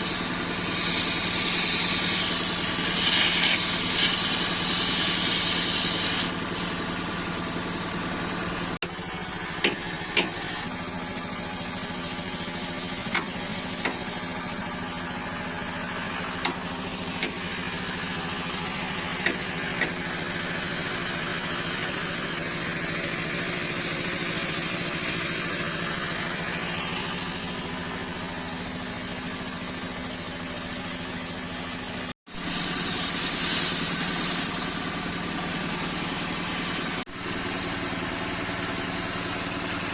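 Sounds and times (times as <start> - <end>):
hiss: 0.0 - 8.8, 32.3 - 39.9
engine idling: 0.0 - 39.9.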